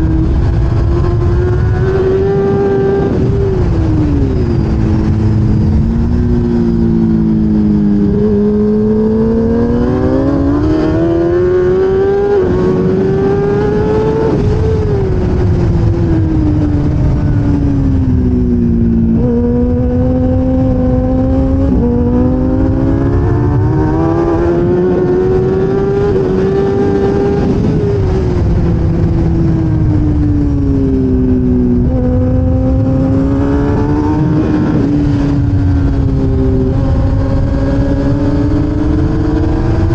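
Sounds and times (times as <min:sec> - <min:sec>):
low rush of wind: 0:00.0 - 0:39.9
motorcycle engine at high revs: 0:00.0 - 0:39.9.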